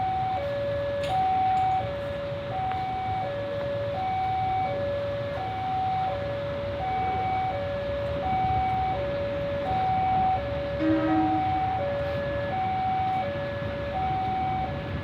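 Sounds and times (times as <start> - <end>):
low engine rumble: 0.0 - 15.0
two-tone electronic warning signal: 5.4 - 14.8.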